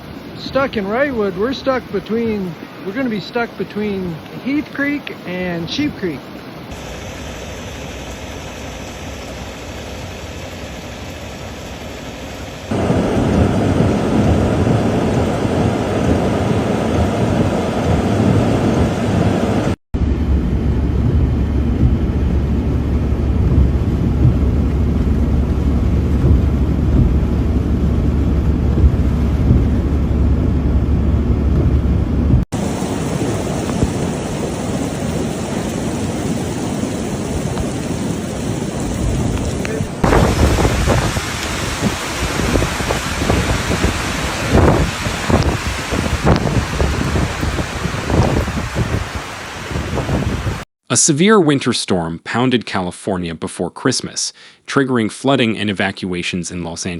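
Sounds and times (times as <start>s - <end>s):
floodwater rushing: 0.0s - 50.7s
rain: 0.0s - 50.7s
heavy low rumble: 6.7s - 48.9s.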